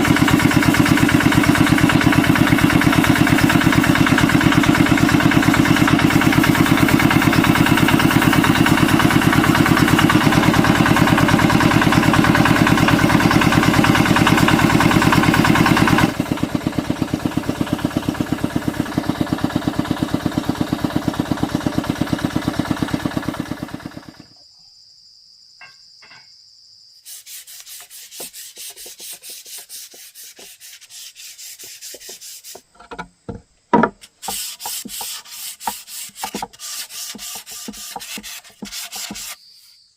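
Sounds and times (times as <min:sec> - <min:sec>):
woodworking machine running: 0:00.0 - 0:24.3
rubbing strokes on wood: 0:27.0 - 0:39.4.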